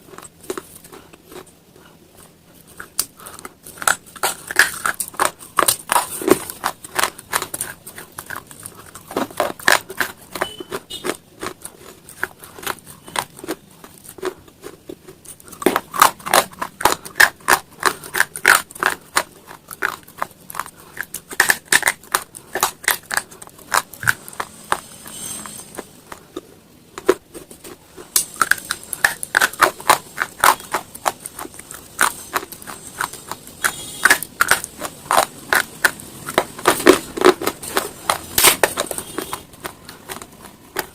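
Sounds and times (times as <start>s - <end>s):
crunching stone pieces: 2.8s - 24.9s.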